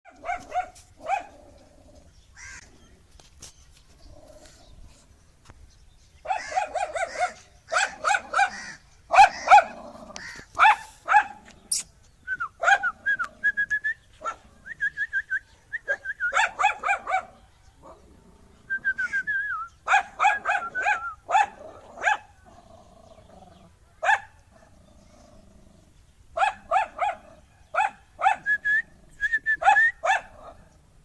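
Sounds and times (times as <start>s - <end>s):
dog barking aggressively: 0.1s - 1.4s, 6.3s - 11.5s, 16.4s - 17.4s, 19.9s - 22.3s, 24.0s - 24.7s, 26.4s - 28.4s, 29.6s - 30.7s
dog yipping high-pitched: 12.6s - 12.9s, 15.9s - 17.3s, 19.9s - 22.2s, 24.0s - 24.3s, 27.8s - 28.6s, 29.6s - 30.3s.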